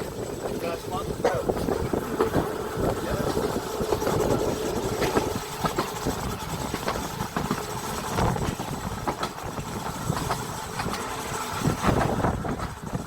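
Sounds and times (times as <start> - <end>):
tram rumbling along track: 0.0 - 13.0
wheels clacking on rails: 0.0 - 13.0.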